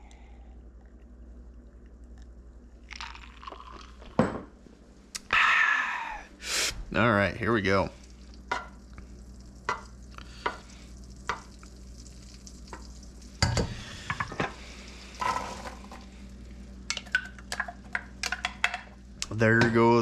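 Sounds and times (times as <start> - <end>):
butter sizzling in a pan: 7.9 - 16.9.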